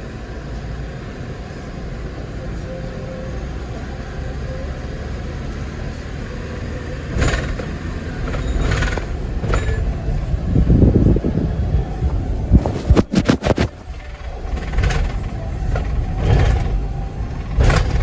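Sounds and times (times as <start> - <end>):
truck engine and road rumble: 0.0 - 18.0.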